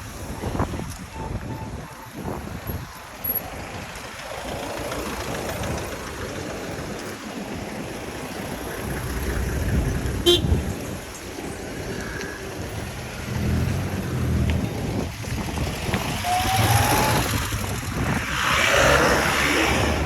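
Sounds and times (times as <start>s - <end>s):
vehicle rumble passing: 2.4s - 20.0s
short horn toot: 10.2s - 10.6s.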